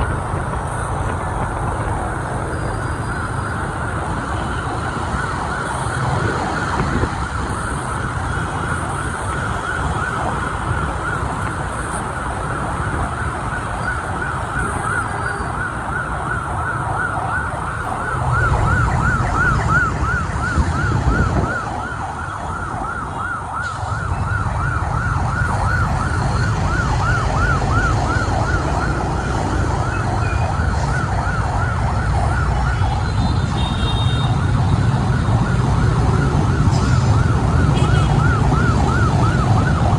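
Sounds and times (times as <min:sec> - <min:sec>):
siren yelping: 0:00.0 - 0:39.9
street traffic rumble: 0:00.0 - 0:39.9.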